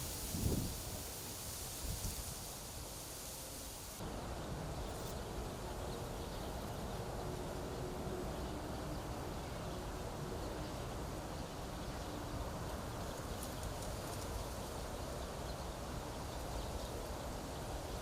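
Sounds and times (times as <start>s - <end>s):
wind rumble on microphone: 0.0s - 2.5s
wind through reeds: 0.0s - 7.7s.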